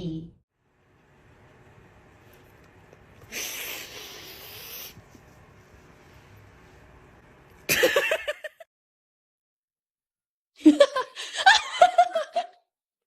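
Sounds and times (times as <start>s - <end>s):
dog hissing breath: 3.2s - 5.3s
person laughing loudly: 7.7s - 8.6s, 10.6s - 12.6s.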